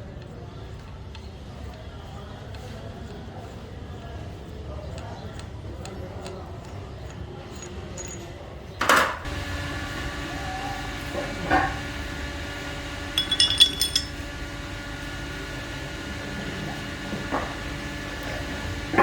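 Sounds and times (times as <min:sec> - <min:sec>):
steady background hum: 0:12.7 - 0:14.6
small metal pieces clinking: 0:13.2 - 0:14.2.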